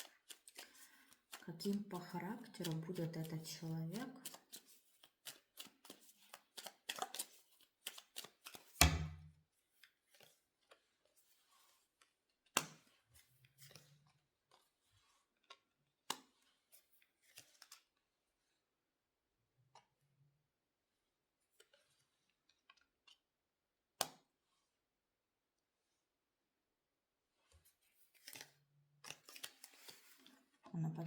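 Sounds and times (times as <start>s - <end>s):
cards being shuffled: 0.0s - 8.9s, 9.8s - 11.8s, 12.5s - 18.0s, 27.8s - 30.6s.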